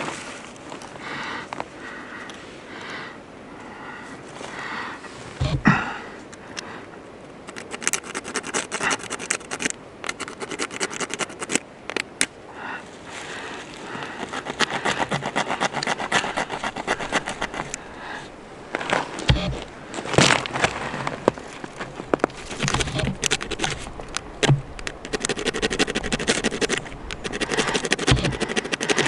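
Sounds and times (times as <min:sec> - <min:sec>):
rapid scraping strokes: 0:07.5 - 0:11.6, 0:13.9 - 0:19.7, 0:22.3 - 0:29.0.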